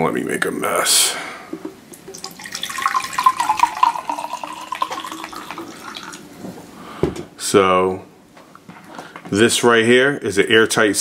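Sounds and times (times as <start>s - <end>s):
water pouring and splashing: 2.0s - 6.3s.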